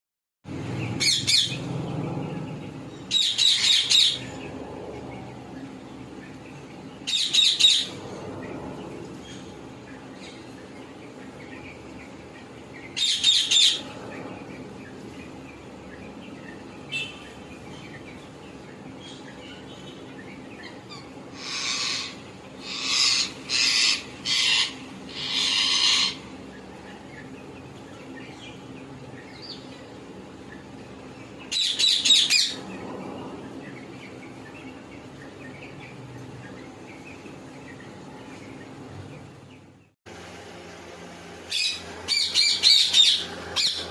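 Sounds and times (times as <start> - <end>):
parakeets screeching: 0.7 - 12.1, 12.7 - 15.4, 18.9 - 27.4, 31.4 - 37.9, 41.5 - 43.9.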